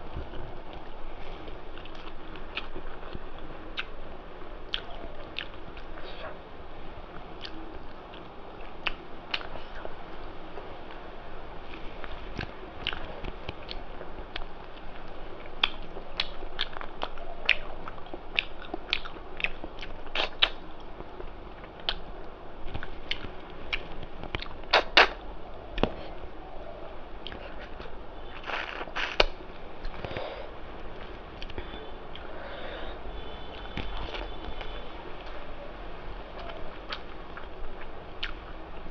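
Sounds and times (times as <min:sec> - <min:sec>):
person chewing food: 0:00.3 - 0:03.9, 0:04.7 - 0:06.3, 0:07.4 - 0:09.9, 0:11.7 - 0:22.1, 0:22.7 - 0:25.2, 0:27.2 - 0:35.4
wet mouth clicks: 0:15.6 - 0:20.6, 0:22.8 - 0:25.2, 0:27.2 - 0:30.2.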